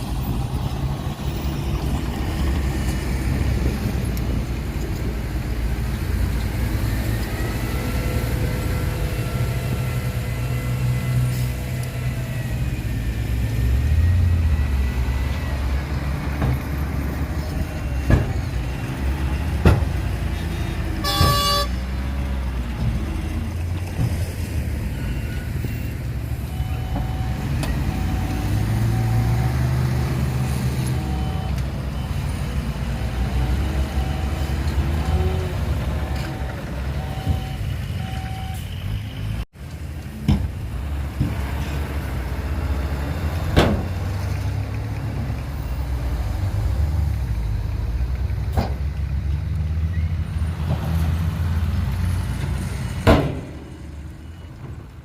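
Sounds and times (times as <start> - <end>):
heavy diesel machinery rumbling: 0.0 - 55.0
horn sounding: 21.0 - 21.8.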